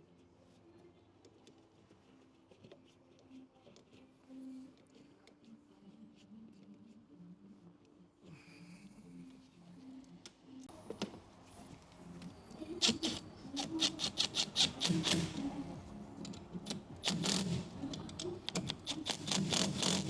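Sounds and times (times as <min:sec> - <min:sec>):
hand tools clicking and rattling: 0:10.8 - 0:20.0.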